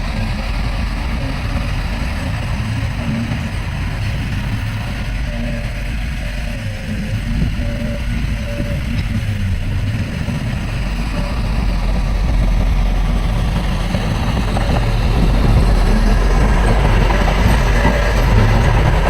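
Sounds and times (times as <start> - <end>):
heavy diesel engine rumbling: 0.0 - 19.0.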